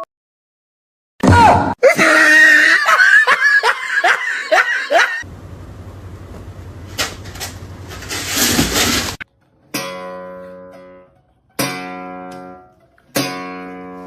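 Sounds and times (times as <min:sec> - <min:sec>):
steady low hum: 0:05.2 - 0:09.2.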